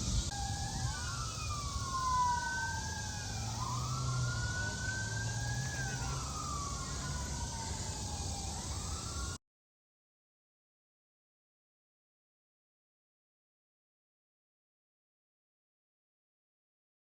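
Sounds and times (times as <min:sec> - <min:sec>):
emergency sirens wailing: 0:00.0 - 0:09.4.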